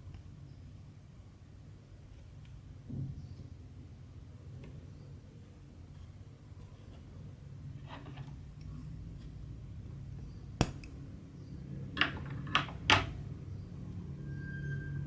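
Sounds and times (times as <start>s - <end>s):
low steady hum: 8.5s - 12.0s
needle clicking: 10.6s - 11.0s.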